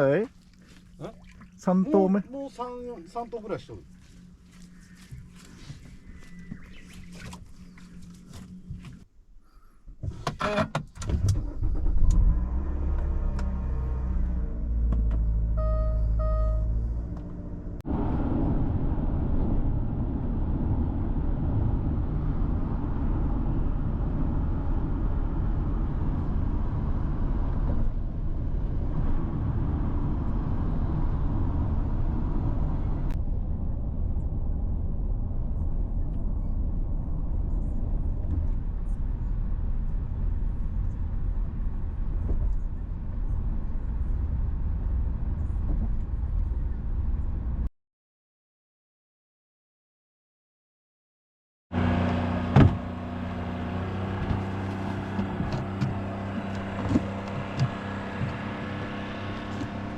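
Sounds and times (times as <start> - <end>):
boat engine rumble: 0.0 - 10.7, 11.4 - 47.7, 51.8 - 59.9
short beeps: 15.6 - 16.8.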